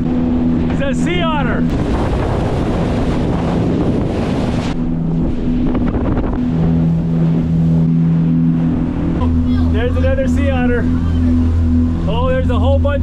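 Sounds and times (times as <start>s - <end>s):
motorboat engine humming: 0.0s - 13.0s
rushing noise over microphone: 0.6s - 7.9s.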